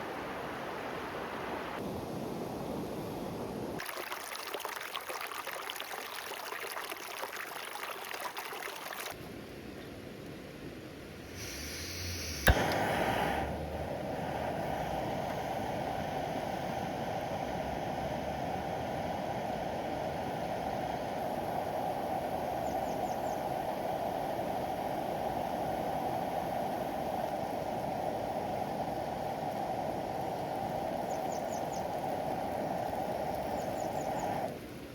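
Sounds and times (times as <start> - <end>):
sharp click: 12.2 - 13.0.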